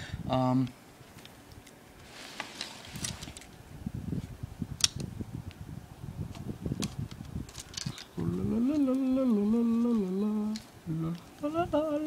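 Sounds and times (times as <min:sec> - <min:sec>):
handling knocks and rustles: 0:01.1 - 0:04.3, 0:06.3 - 0:08.2.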